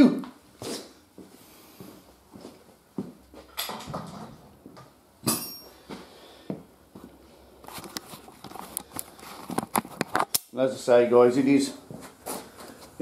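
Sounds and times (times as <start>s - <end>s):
camera handling clicks and rattles: 7.8s - 10.5s.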